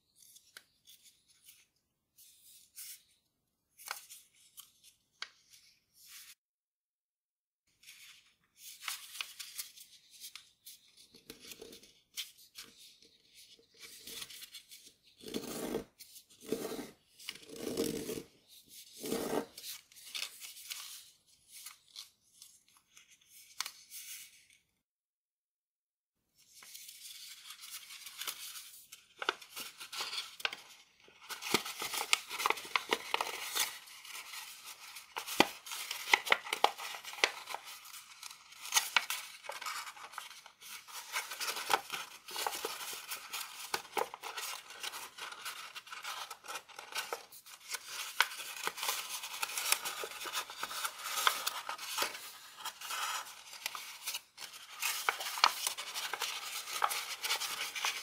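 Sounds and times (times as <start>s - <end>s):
paper rustling and crinkling: 26.5s - 58.0s
paper creasing crackles: 31.3s - 58.0s.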